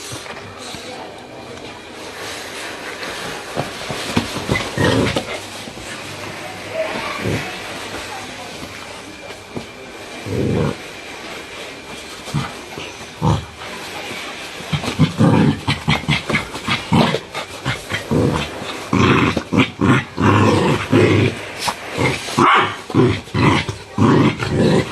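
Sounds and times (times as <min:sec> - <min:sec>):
dogs growling: 0:00.0 - 0:24.9.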